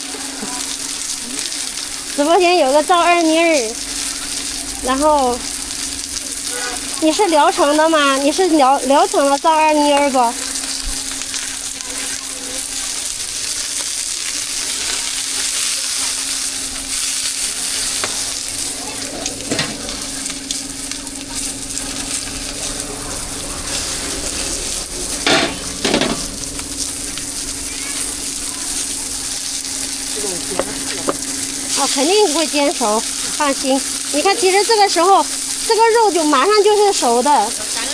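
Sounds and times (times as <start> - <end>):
food sizzling in oil: 0.0 - 37.9
steady low hum: 0.8 - 11.9, 16.2 - 34.5.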